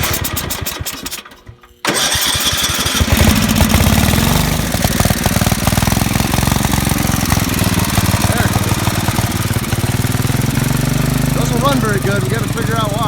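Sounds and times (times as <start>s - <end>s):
engine starter cranking: 0.0s - 13.0s
small engine running unevenly: 0.0s - 13.0s.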